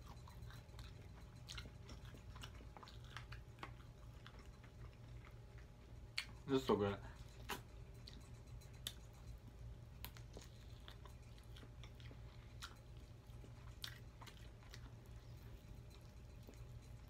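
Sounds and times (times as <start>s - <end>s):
person chewing chicken wings: 0.0s - 6.4s, 10.0s - 17.0s.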